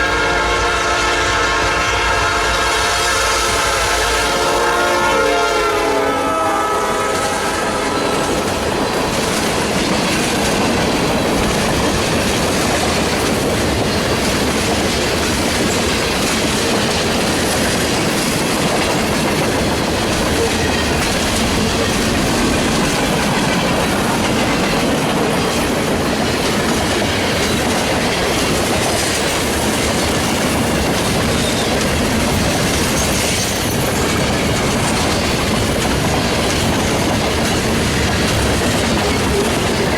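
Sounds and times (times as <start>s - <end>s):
locomotive horn: 0.0s - 8.9s
train wheels rumbling on rails: 0.0s - 39.9s.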